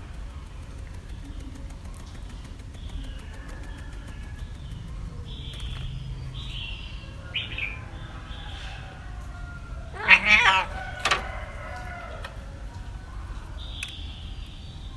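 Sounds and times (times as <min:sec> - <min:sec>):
low steady background noise: 0:00.0 - 0:14.9
cat meowing: 0:09.9 - 0:11.1.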